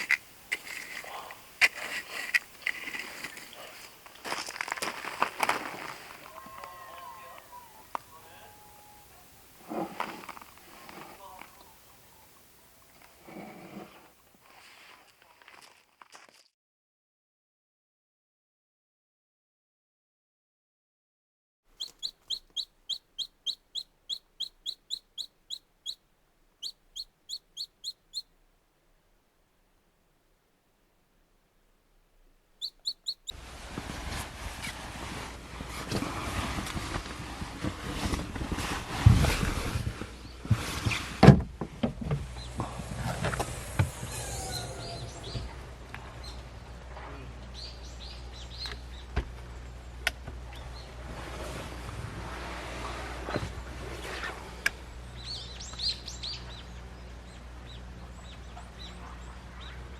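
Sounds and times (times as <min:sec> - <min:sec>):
small birds chirping: 0:10.3 - 0:13.2, 0:21.7 - 0:28.4, 0:32.5 - 0:33.4, 0:47.4 - 0:50.9, 0:55.0 - 0:59.9
bird calling sharp high notes: 0:21.8 - 0:26.0, 0:26.6 - 0:28.3, 0:32.6 - 0:33.4.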